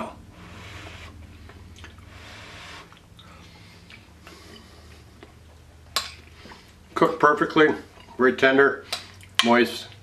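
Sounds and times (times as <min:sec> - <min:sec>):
low steady hum: 0:00.0 - 0:10.0
man chewing: 0:00.5 - 0:07.0, 0:08.9 - 0:09.4.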